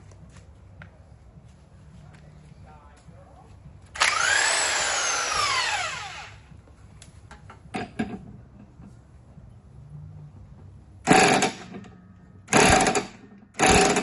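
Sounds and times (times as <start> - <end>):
power drill whining: 4.0 - 6.4.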